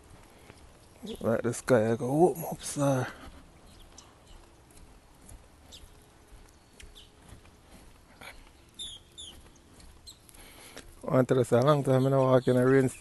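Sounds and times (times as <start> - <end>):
faint bird chirps: 5.6 - 7.4, 8.1 - 10.8.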